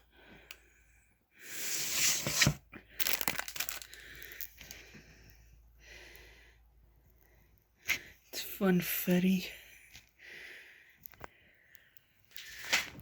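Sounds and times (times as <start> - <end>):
crackles and clicks: 2.8 - 5.4, 9.9 - 13.0
rustling crinkling noise: 11.0 - 13.0.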